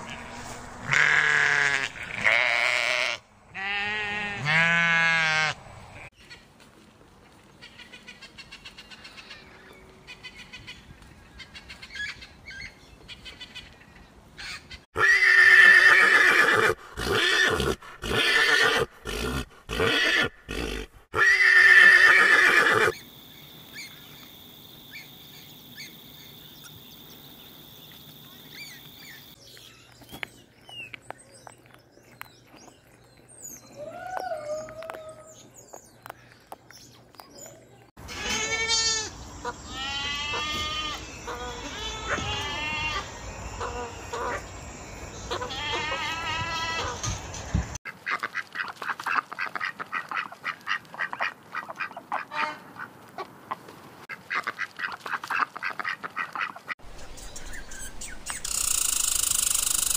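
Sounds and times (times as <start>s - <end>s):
donkey braying: 15.0s - 22.9s.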